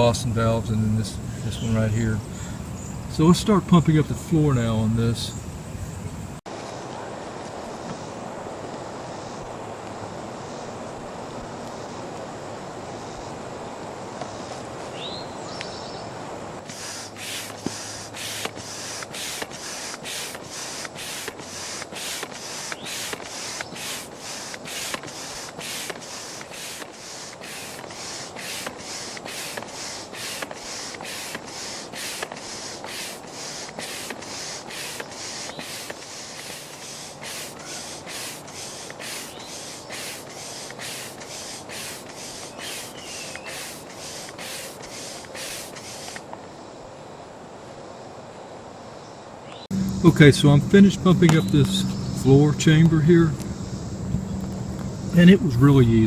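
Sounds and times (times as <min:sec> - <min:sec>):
foot pump air rushing: 0:16.6 - 0:46.3, 0:49.7 - 0:53.5.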